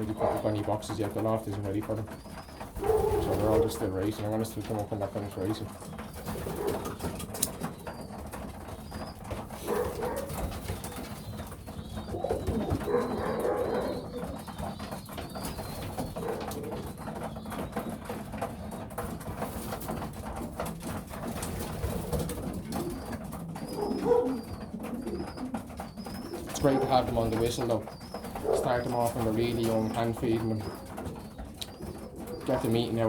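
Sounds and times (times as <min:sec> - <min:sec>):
birds clicking and tapping: 0:00.0 - 0:33.0
pigeons cooing: 0:00.0 - 0:33.0.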